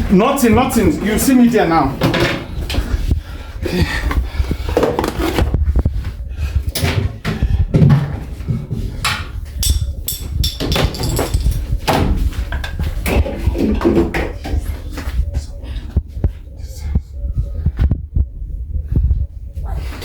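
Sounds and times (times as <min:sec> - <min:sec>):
low rumble: 0:05.4 - 0:20.0
knocks and bumps of handling: 0:06.7 - 0:14.7.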